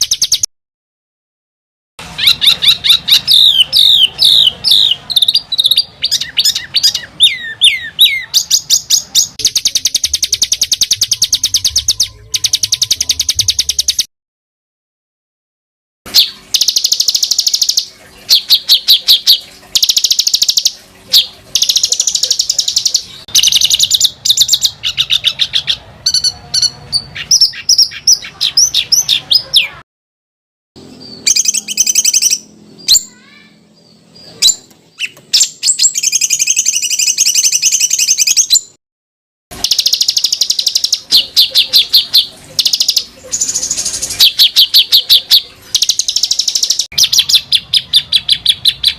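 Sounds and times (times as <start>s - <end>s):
songbirds trilling and chattering: 2.0s - 14.0s, 16.1s - 29.8s, 30.8s - 38.7s, 39.6s - 48.9s.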